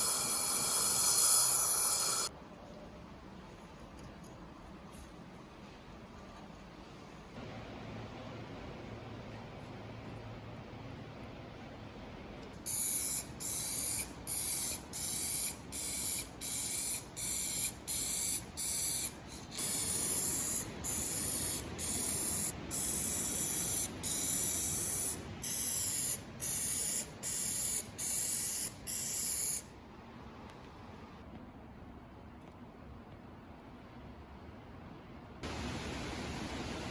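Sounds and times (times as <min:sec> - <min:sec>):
spray hissing in short bursts: 0:00.0 - 0:02.3, 0:12.7 - 0:29.7.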